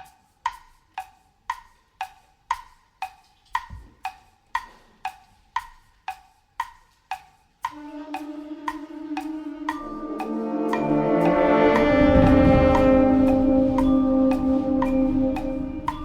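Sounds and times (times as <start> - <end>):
wood blocks tick-tock: 0.0 - 16.0
wind band held chord: 7.7 - 16.0.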